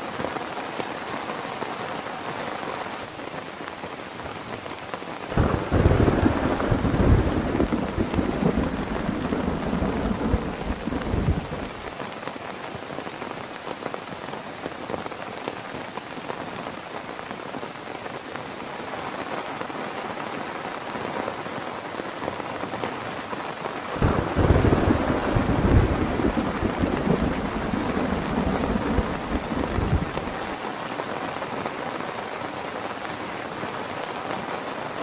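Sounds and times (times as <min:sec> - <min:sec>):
heavy rain falling: 0:00.0 - 0:35.0
thunder rumbling: 0:05.3 - 0:11.9, 0:24.0 - 0:30.6.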